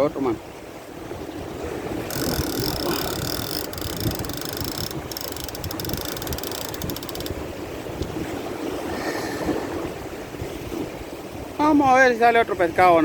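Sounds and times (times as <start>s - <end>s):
wind buffeting microphone: 0.9s - 11.8s
fishing reel clicking whir: 2.0s - 7.4s.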